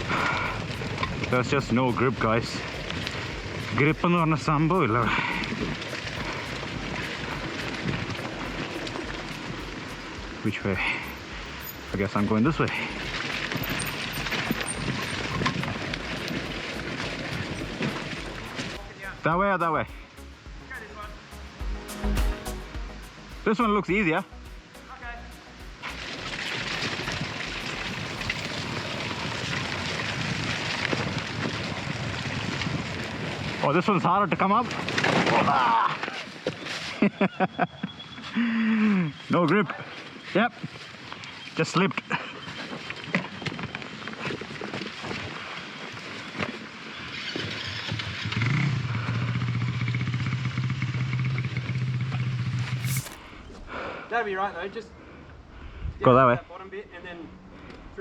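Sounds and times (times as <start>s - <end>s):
dense crackling noise: 0.0s - 21.3s, 22.6s - 35.6s
dirt bike engine: 0.0s - 33.8s, 46.9s - 53.8s.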